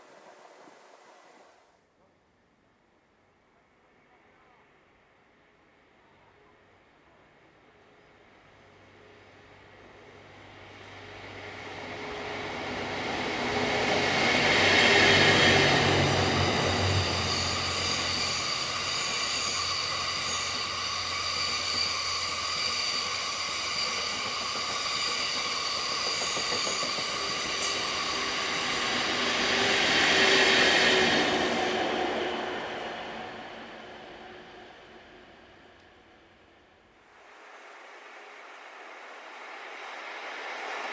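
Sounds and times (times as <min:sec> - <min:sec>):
train high whine: 0:07.4 - 0:36.6
passenger train passing: 0:08.2 - 0:36.6, 0:39.4 - 0:40.9
train wheel clicks: 0:21.4 - 0:28.2.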